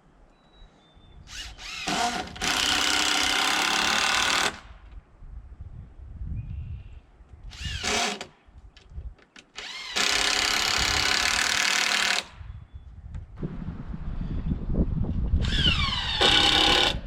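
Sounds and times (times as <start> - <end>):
electric power tool whirring: 1.3 - 4.6, 7.5 - 8.3, 9.5 - 12.3, 15.4 - 17.0.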